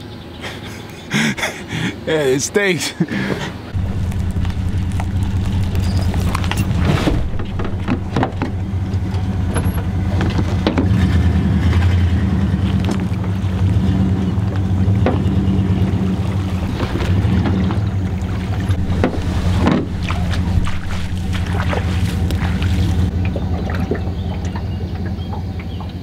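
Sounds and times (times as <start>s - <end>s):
boat motor running: 3.2s - 26.0s
knocks and clicks: 3.8s - 10.9s.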